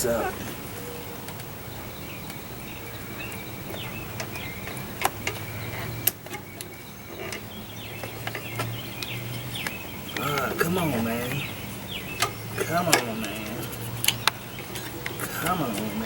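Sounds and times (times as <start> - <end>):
birds chirping: 0.0 - 16.0
clicks and knocks of hand tools: 3.2 - 16.0.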